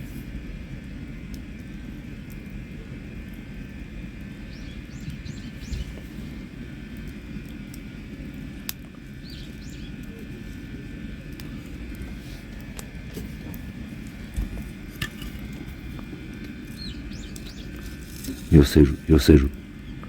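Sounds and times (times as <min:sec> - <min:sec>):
campfire crackling: 0:00.0 - 0:20.0
fire pop: 0:00.8 - 0:18.7
bird chirping: 0:04.4 - 0:06.1, 0:09.2 - 0:10.0, 0:16.7 - 0:20.0.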